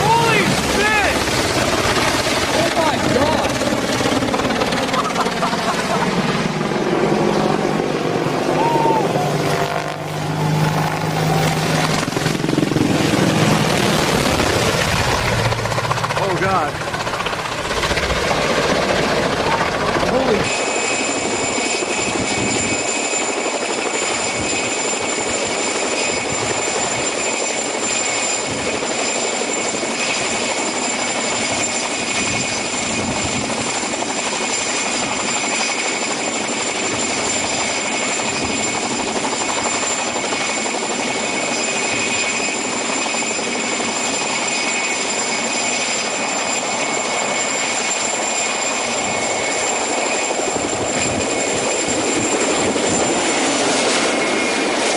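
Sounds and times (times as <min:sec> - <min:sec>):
high whine: 0:00.0 - 0:17.3
aircraft engine drone: 0:00.0 - 0:54.9.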